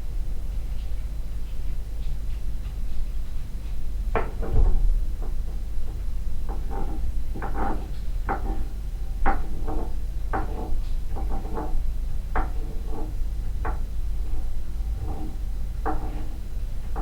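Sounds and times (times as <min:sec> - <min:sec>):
steady low hum: 0:00.0 - 0:17.0
knocks and thuds on a floor: 0:04.1 - 0:06.8.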